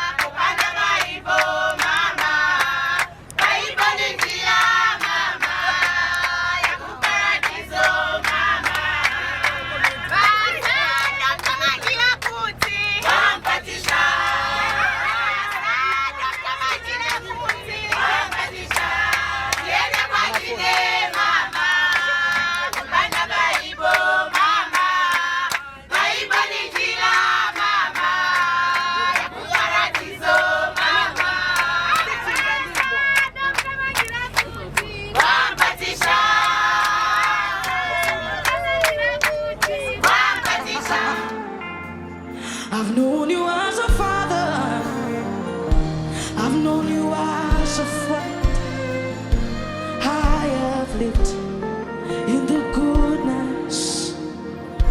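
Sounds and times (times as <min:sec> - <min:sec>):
women's choir singing: 0:00.0 - 0:41.9, 0:42.8 - 0:45.5
hand clapping: 0:00.1 - 0:14.0, 0:17.0 - 0:41.4.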